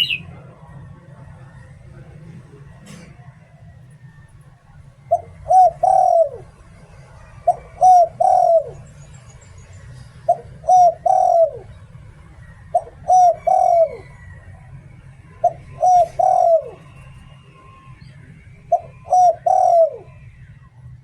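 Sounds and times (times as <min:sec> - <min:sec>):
dove cooing: 0:00.0 - 0:00.2, 0:05.1 - 0:06.5, 0:07.5 - 0:08.8, 0:10.3 - 0:11.7, 0:12.8 - 0:14.2, 0:15.4 - 0:16.8, 0:18.7 - 0:20.1.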